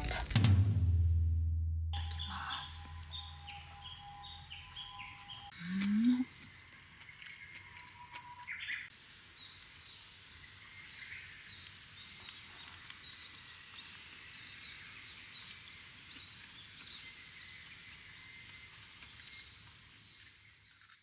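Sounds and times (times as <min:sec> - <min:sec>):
small birds chirping: 0:01.9 - 0:20.9
thin steady high tone: 0:02.0 - 0:06.2.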